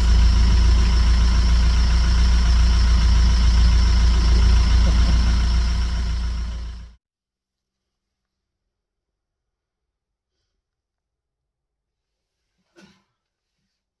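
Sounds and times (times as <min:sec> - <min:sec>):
vehicle engine idling: 0:00.0 - 0:07.0.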